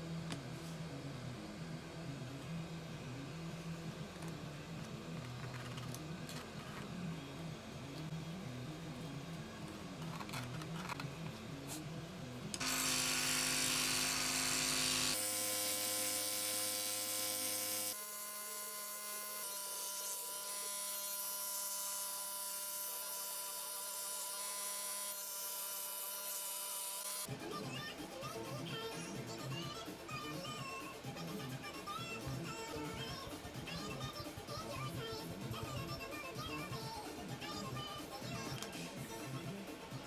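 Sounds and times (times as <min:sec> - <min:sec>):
electric power tool running: 0:12.6 - 0:27.3
background music: 0:27.3 - 0:40.0.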